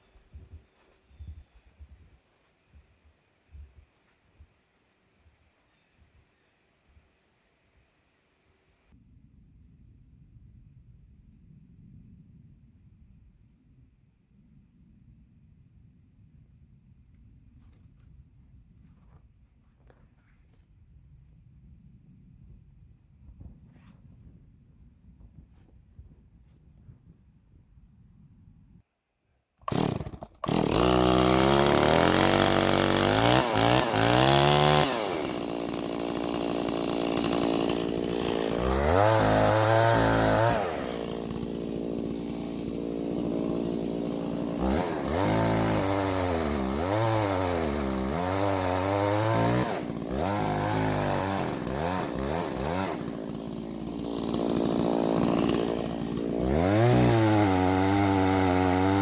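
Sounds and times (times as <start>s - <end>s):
chainsaw revving: 29.6s - 59.0s.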